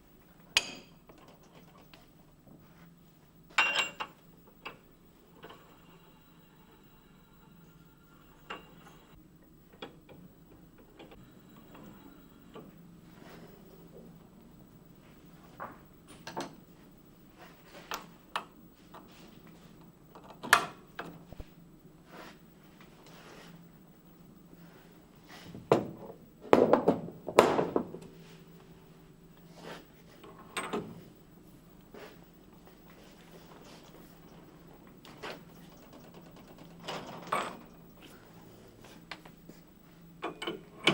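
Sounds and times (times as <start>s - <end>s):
faint steady hum: 0.0s - 40.9s
metal parts knocking and clanking: 35.6s - 37.8s.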